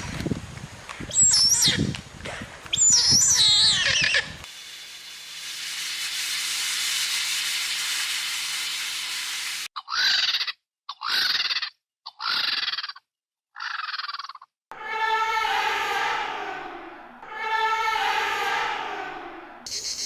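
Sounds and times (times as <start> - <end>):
shrill animal calls: 2.8 - 4.4, 9.8 - 15.2
steady hiss: 4.4 - 9.7.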